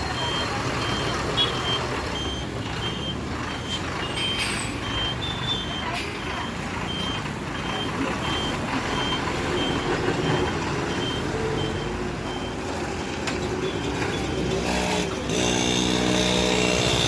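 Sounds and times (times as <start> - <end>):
reversing alarm beeps: 0.0 - 12.8
diesel engine running: 0.0 - 17.0.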